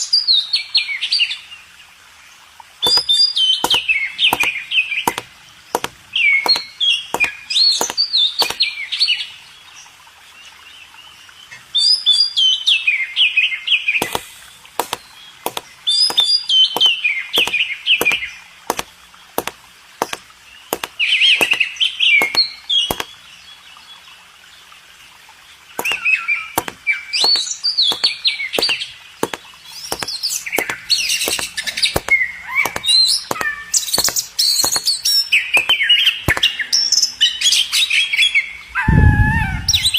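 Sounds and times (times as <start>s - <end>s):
sharp clicks: 2.8s - 8.6s, 14.0s - 23.2s, 25.8s - 36.6s.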